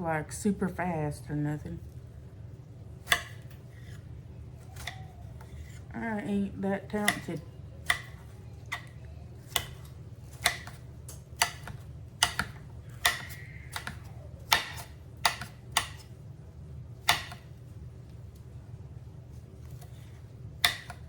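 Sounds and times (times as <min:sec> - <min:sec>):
steady low hum: 0:00.0 - 0:21.0
knife chopping on cutting board: 0:03.0 - 0:04.0, 0:04.6 - 0:05.9, 0:06.9 - 0:16.2, 0:17.0 - 0:17.6, 0:19.6 - 0:21.0.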